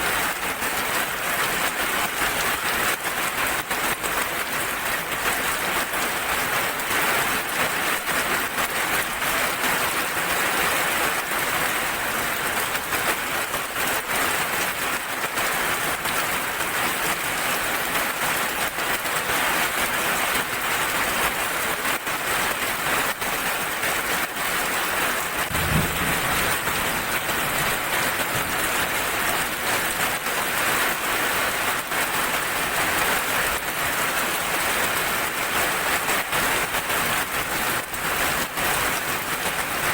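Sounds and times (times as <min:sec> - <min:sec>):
steady rain patter: 0:00.0 - 0:39.9
brief low thump: 0:25.5 - 0:27.2.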